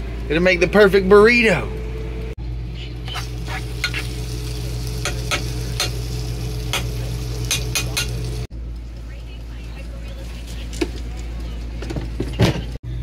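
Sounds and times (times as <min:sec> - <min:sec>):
steady low hum: 0:00.0 - 0:13.0
food sizzling in a pan: 0:03.1 - 0:08.5.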